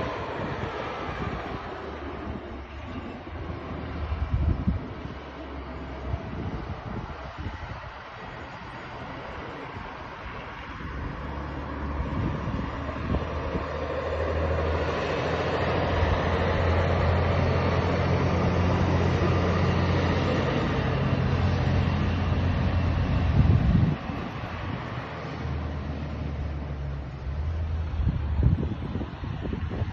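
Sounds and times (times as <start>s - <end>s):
truck diesel engine humming: 0.0s - 29.9s.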